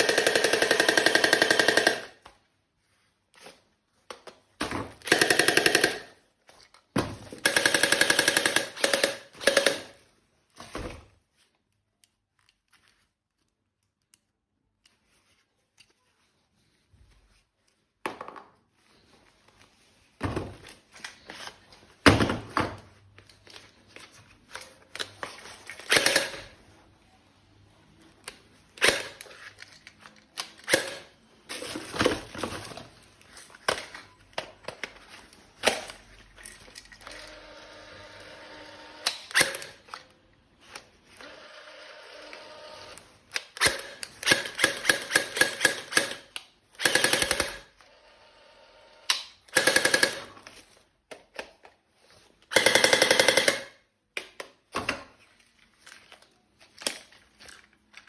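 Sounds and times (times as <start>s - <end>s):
toy gun clicks: 0.0s - 2.2s, 7.5s - 9.9s
toy gun rapid-fire shots: 0.0s - 2.2s, 5.0s - 6.2s, 7.4s - 10.0s, 25.8s - 26.5s, 43.5s - 47.7s, 49.2s - 50.4s, 52.5s - 53.8s.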